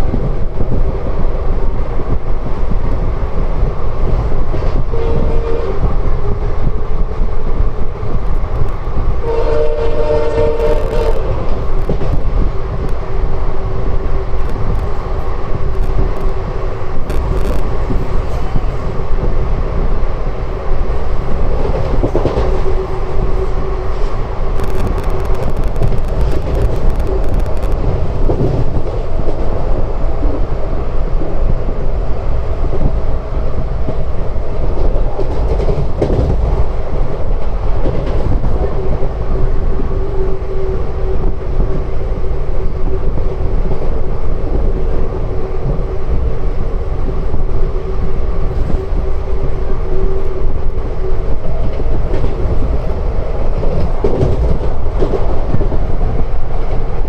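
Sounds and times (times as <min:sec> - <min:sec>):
diesel train rumble: 0:00.0 - 0:57.0.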